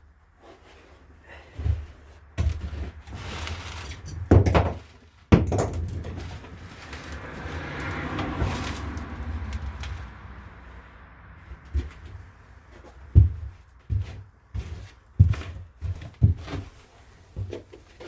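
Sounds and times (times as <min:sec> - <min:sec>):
shuffling handling noise: 0:00.0 - 0:18.0
tools knocking and clunking: 0:04.0 - 0:06.7.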